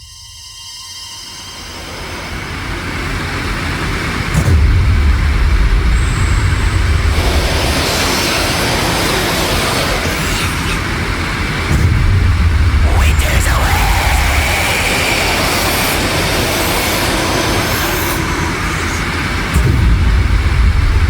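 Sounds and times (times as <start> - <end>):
dense rushing noise: 2.4 - 21.0
heavy low rumble: 4.3 - 21.0.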